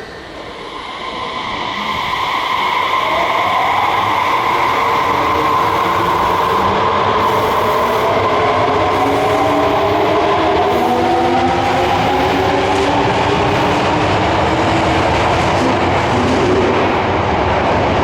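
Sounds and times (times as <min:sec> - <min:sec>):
train wheel and running noise: 0:00.0 - 0:18.0.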